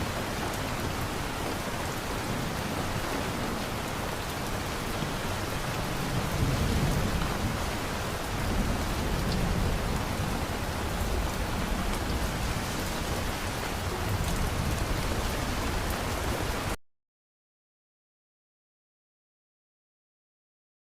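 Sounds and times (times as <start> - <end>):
heavy rain falling: 0.0 - 16.8
low rolling thunder: 5.9 - 16.5.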